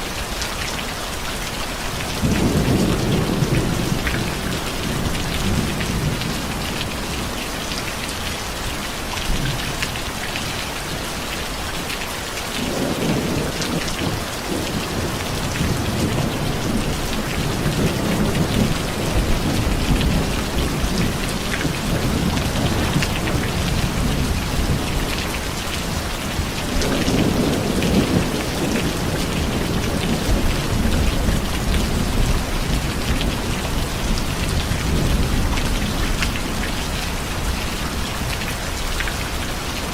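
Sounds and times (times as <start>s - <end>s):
steady rain falling: 0.0s - 39.9s
low rolling thunder: 2.2s - 7.3s, 12.6s - 38.4s.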